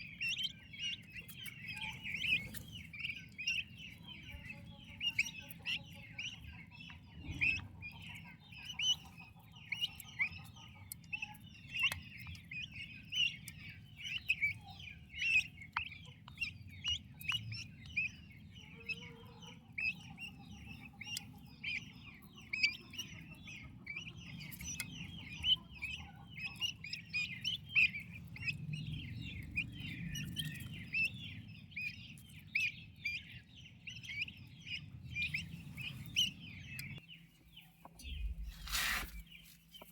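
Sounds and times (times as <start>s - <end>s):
turkey poults peeping: 0.0s - 39.9s
low rumble: 38.0s - 39.4s.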